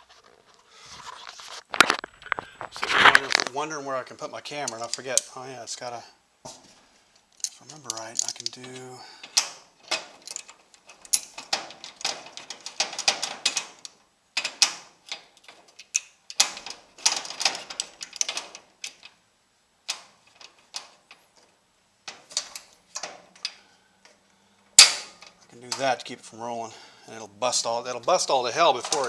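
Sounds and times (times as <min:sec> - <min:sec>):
metallic rattling of hardware: 0:07.2 - 0:19.2, 0:19.8 - 0:26.1, 0:28.0 - 0:29.0.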